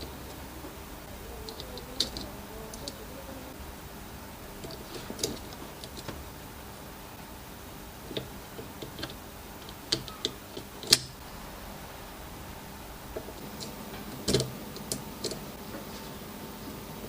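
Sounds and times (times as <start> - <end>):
tools clicking and tapping: 8.1 - 11.2.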